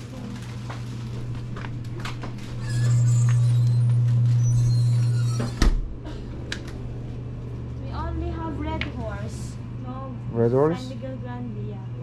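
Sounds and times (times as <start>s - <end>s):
drinks cooler humming: 0.0s - 12.0s
door shutting thud: 5.4s - 6.0s.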